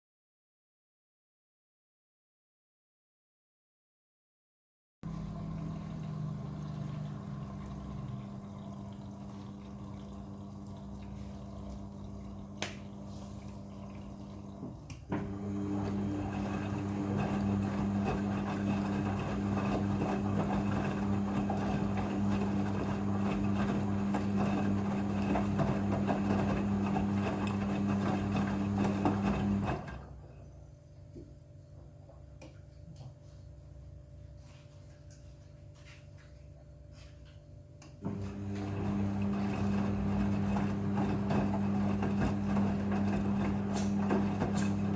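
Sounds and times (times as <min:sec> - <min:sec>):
washing machine humming: 0:05.0 - 0:44.9
running water: 0:05.1 - 0:20.3.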